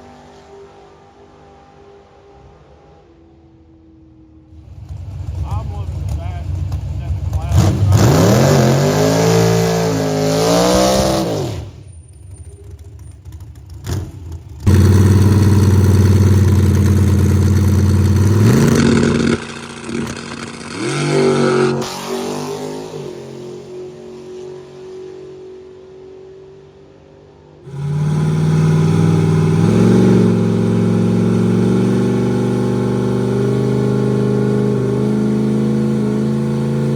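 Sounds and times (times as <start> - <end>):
racing car engines revving: 0.0 - 3.6, 4.5 - 11.9, 12.6 - 36.9.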